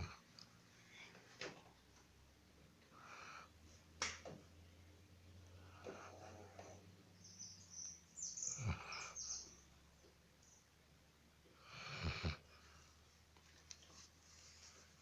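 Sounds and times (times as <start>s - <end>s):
dog snoring faintly: 5.5s - 6.9s, 8.5s - 9.4s, 11.6s - 12.7s.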